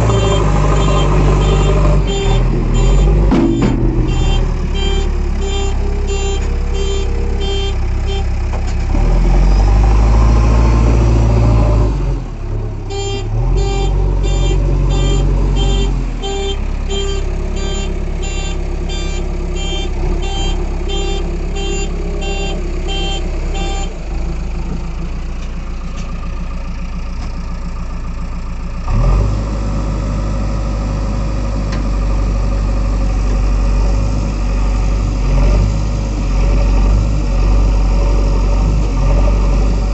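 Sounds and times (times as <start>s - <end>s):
diesel engine labouring: 0.0s - 39.9s
rapid electronic beeping: 0.1s - 8.3s.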